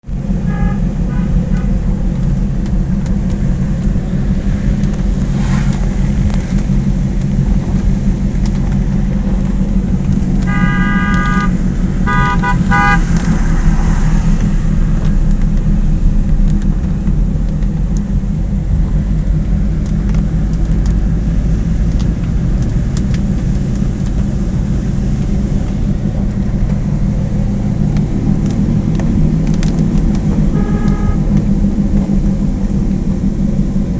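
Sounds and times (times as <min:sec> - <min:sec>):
road noise: 0:00.0 - 0:33.9
vehicle engine rumble: 0:00.0 - 0:33.9
car horn honks: 0:00.2 - 0:01.9, 0:10.1 - 0:14.4, 0:30.2 - 0:31.6.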